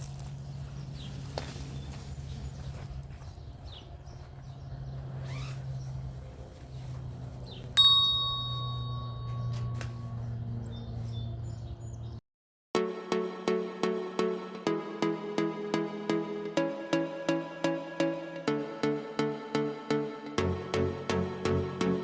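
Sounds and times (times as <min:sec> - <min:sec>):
birds chirping: 0:00.0 - 0:12.2
metallic bell ding: 0:07.7 - 0:10.3.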